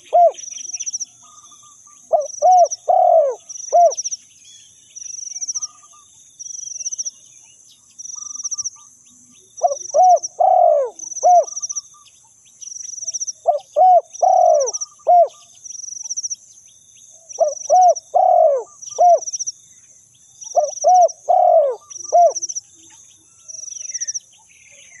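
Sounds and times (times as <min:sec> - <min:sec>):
dove cooing: 0:00.0 - 0:04.0, 0:09.6 - 0:11.8, 0:13.4 - 0:15.5, 0:17.4 - 0:19.4, 0:20.5 - 0:22.6.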